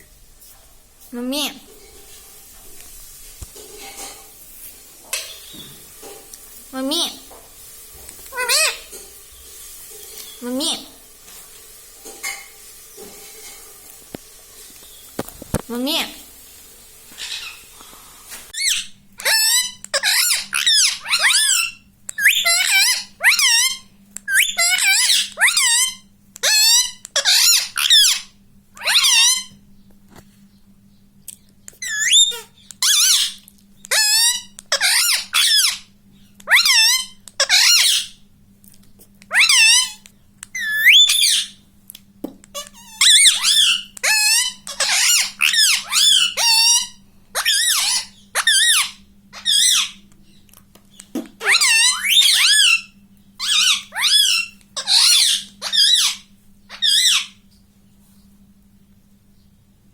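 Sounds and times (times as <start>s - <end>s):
parakeet squawking: 8.3s - 8.9s, 17.1s - 17.7s, 18.6s - 29.6s, 31.7s - 38.2s, 39.3s - 41.6s, 42.5s - 50.0s, 51.4s - 57.4s.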